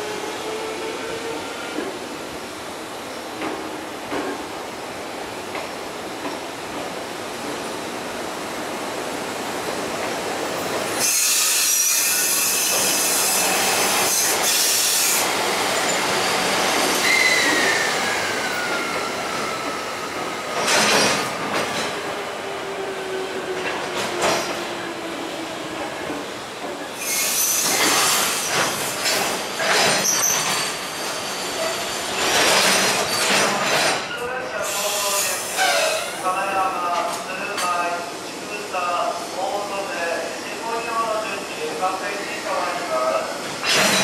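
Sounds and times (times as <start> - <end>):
train clanks: 3.3 - 4.5, 5.4 - 7.7, 10.0 - 22.2, 23.5 - 24.8, 25.8 - 38.0, 42.5 - 44.0
wheels and brakes squealing: 11.0 - 15.2, 15.8 - 19.2, 27.0 - 29.2, 29.8 - 32.5, 34.9 - 36.2.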